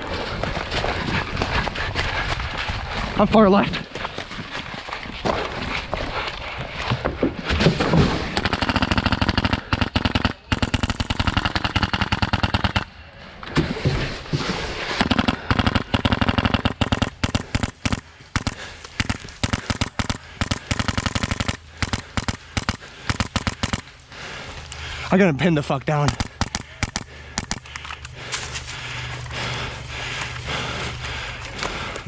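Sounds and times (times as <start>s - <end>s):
airsoft gun firing bursts: 8.2s - 13.0s, 15.0s - 24.0s, 26.0s - 27.8s.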